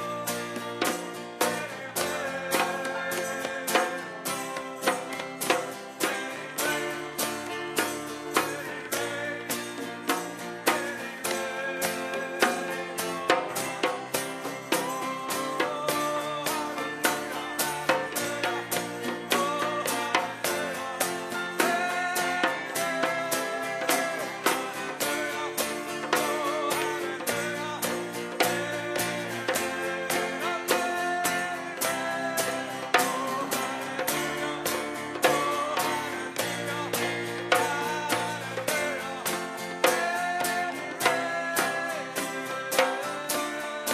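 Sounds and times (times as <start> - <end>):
guitar over steady beat: 0.0 - 43.9
singing voices: 0.0 - 43.9.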